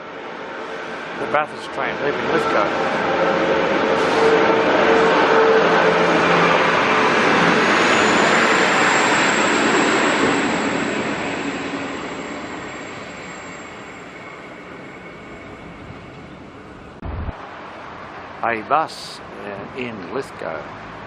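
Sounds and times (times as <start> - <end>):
diesel train pulling away: 0.0 - 17.0
thin high whine: 0.0 - 17.4.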